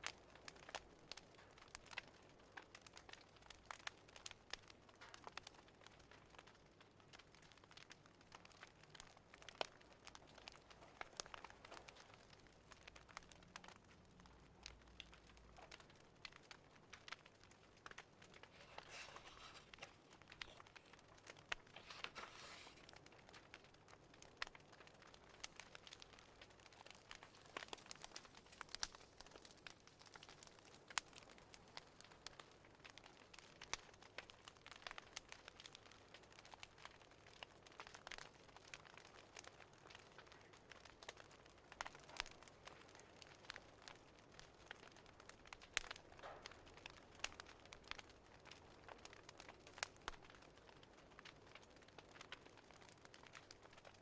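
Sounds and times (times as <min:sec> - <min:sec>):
fire crackling: 0:00.0 - 0:54.0
rustling: 0:18.2 - 0:23.0.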